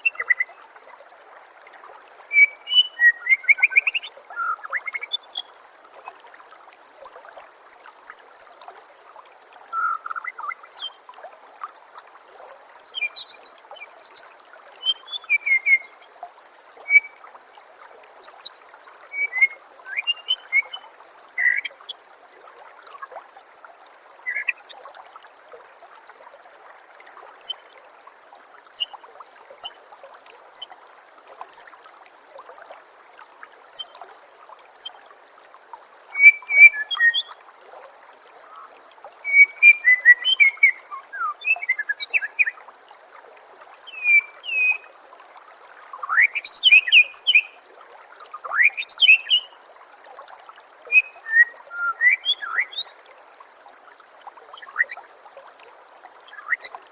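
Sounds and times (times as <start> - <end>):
songbird singing: 0.0 - 0.6, 2.3 - 5.5, 7.0 - 8.6, 9.8 - 11.0, 12.7 - 16.1, 18.2 - 20.8, 21.4 - 21.9, 24.3 - 24.6, 27.4 - 27.6, 28.7 - 29.0, 29.6 - 29.8, 31.5 - 31.7, 33.7 - 33.9, 36.2 - 37.3, 39.2 - 42.6, 43.9 - 44.8, 46.1 - 47.5, 48.5 - 49.6, 50.9 - 52.9, 56.3 - 56.8
running water trickling: 0.0 - 56.9.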